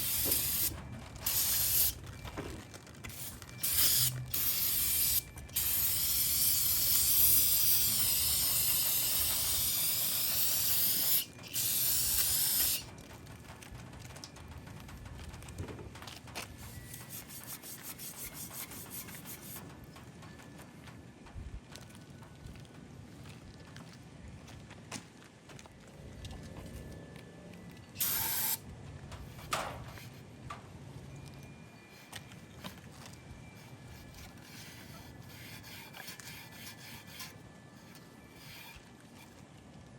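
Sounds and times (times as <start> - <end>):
hissing spray on engine block: 0.0 - 2.0, 3.1 - 12.9, 28.0 - 28.6.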